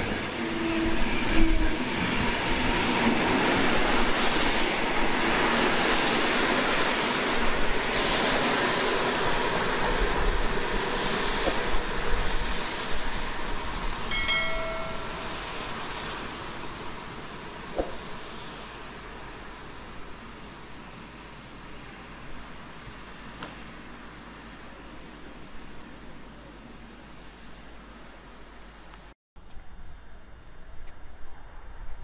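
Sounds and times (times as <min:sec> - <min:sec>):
train wheels rumbling on track: 0:00.0 - 0:19.8
high thin wheel squeal: 0:10.3 - 0:18.6, 0:25.6 - 0:29.2.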